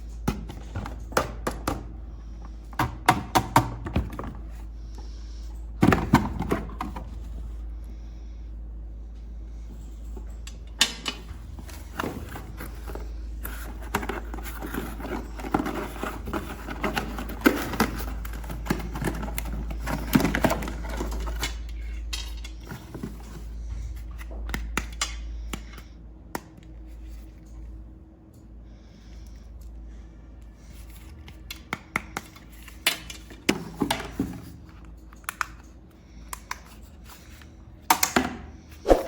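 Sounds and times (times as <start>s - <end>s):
steady low hum: 0.0s - 31.6s
plastic toy parts clicking and clattering: 13.6s - 23.1s.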